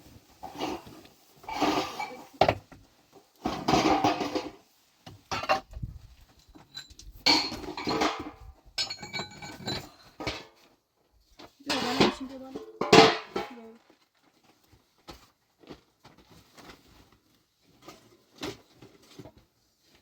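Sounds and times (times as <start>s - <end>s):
dishes and pots clattering: 0.4s - 2.8s, 3.4s - 5.8s, 6.6s - 10.7s, 11.7s - 13.7s.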